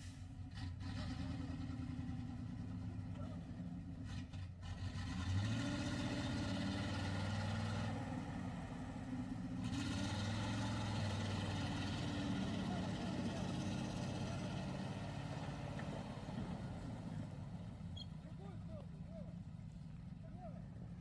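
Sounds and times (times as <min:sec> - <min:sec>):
truck engine running: 0:05.0 - 0:21.0.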